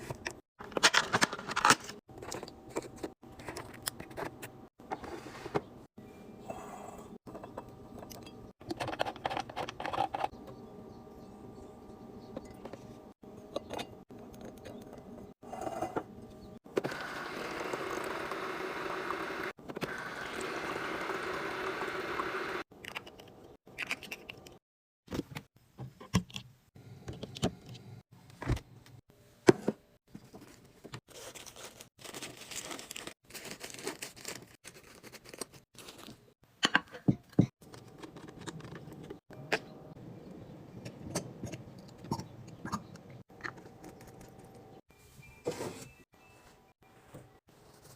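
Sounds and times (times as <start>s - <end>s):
rustling groceries: 30.1s - 36.4s.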